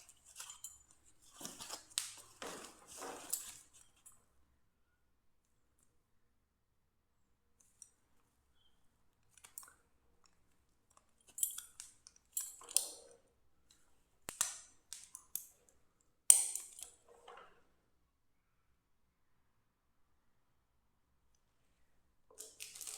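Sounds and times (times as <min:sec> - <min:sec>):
packaging rustles and clicks: 0:00.0 - 0:04.1, 0:22.4 - 0:22.9.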